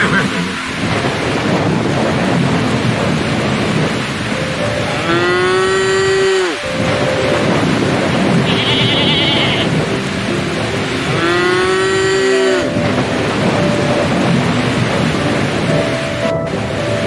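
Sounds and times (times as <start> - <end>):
rain hissing: 0.0 - 17.0
cow mooing: 8.4 - 9.8.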